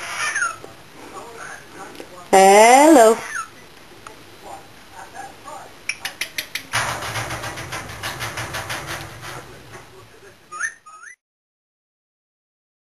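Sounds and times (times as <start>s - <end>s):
cockatiel clicking: 5.9s - 6.7s.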